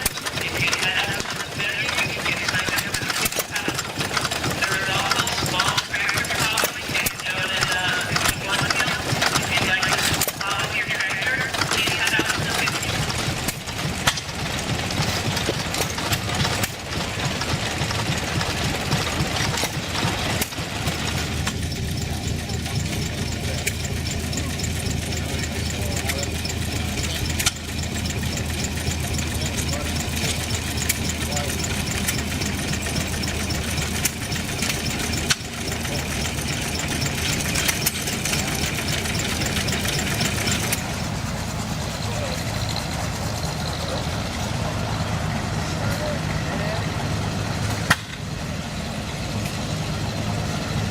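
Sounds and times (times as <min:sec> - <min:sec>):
engine pops: 0:00.0 - 0:44.4
gasoline engines chugging: 0:00.0 - 0:50.9.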